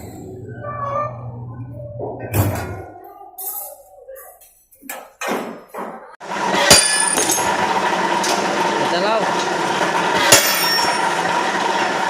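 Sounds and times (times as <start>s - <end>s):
machine running: 6.2s - 12.0s
sharp metallic clang: 6.6s - 7.5s.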